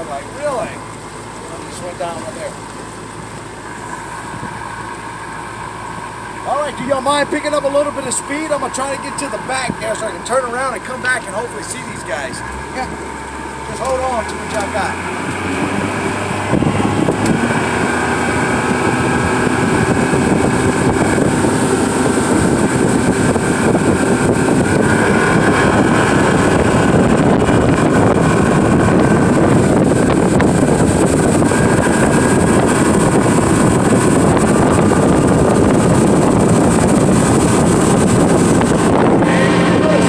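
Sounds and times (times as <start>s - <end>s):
boat motor running: 0.0s - 40.0s
wind buffeting microphone: 3.1s - 40.0s.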